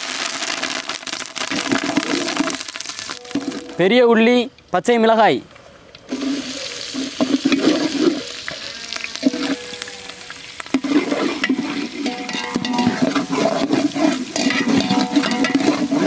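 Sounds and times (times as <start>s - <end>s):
onions sizzling in hot oil: 0.0s - 3.6s, 6.1s - 16.0s
wooden ladle stirring pot: 6.1s - 16.0s.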